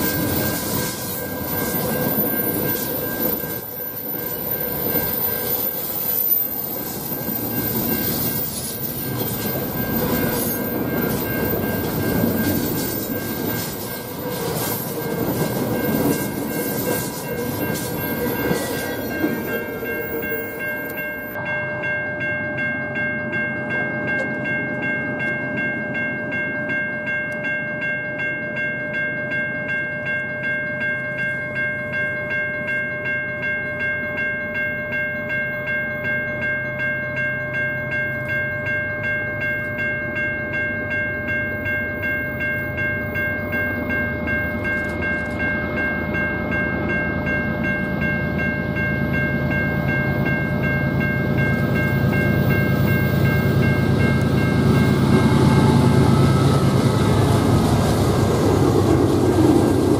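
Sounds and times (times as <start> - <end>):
train rumble: 0.0 - 26.8, 40.8 - 59.9
high ringing tones: 0.0 - 59.6.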